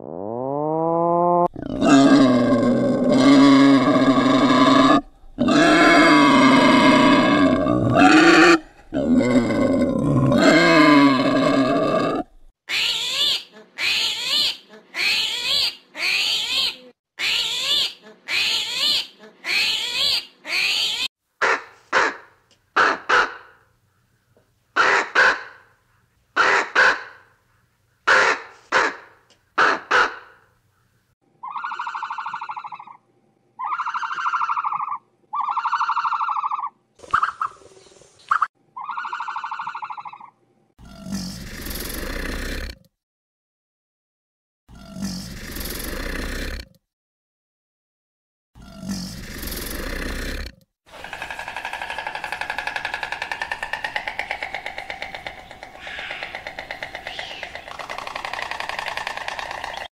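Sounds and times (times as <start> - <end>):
animal calls: 31.4 - 33.0, 33.6 - 37.6, 38.3 - 40.4, 50.9 - 59.9.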